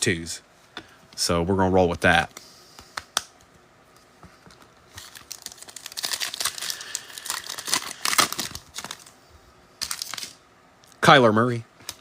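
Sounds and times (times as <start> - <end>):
foil wrapper crinkling and tearing: 4.6 - 9.2, 9.8 - 10.4.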